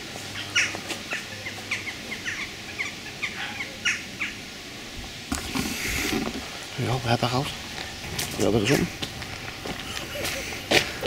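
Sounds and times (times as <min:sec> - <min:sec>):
small birds chirping: 0:00.1 - 0:04.5, 0:05.4 - 0:11.0
brushing rustle: 0:05.0 - 0:11.0.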